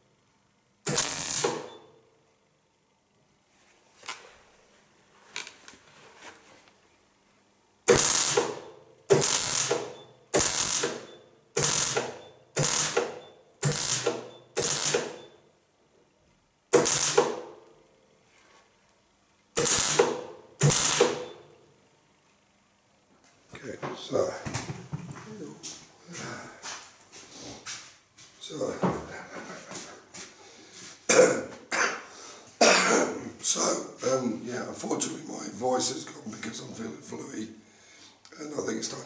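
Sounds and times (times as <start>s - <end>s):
welding arc crackling: 0.8s - 1.7s, 7.9s - 15.2s, 16.7s - 17.5s, 19.5s - 21.3s.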